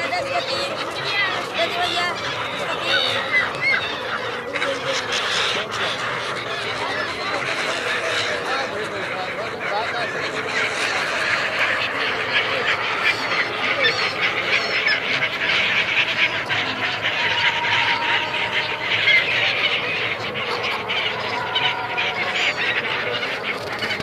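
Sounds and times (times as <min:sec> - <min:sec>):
flock of gulls squawking: 0:00.0 - 0:24.0.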